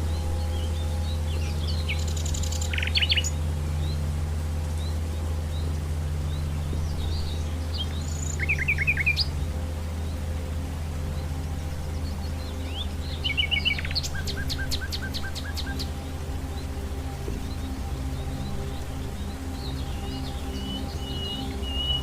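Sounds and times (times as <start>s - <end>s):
nightingale singing: 0.0s - 4.0s, 6.3s - 9.3s, 12.4s - 16.0s, 17.4s - 22.0s
steady low hum: 0.0s - 22.0s.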